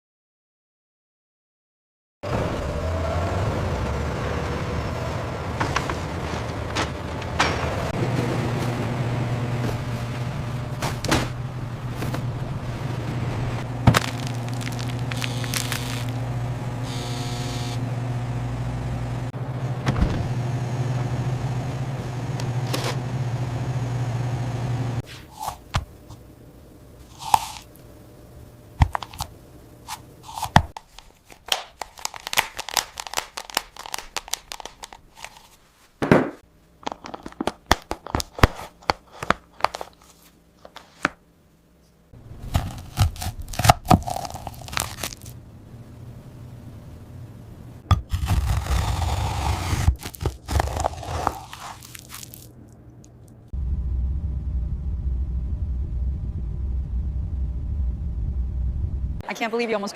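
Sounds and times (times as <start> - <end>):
low machine hum: 2.3 - 31.4, 41.2 - 59.9
scrapes and crunches: 13.9 - 16.2, 29.9 - 36.0, 36.9 - 41.2, 42.3 - 45.4, 47.9 - 53.4.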